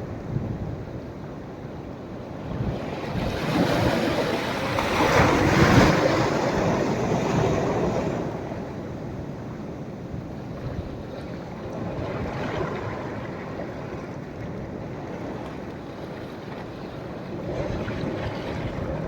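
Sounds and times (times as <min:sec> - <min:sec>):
sea waves breaking on shore: 0:02.3 - 0:19.0.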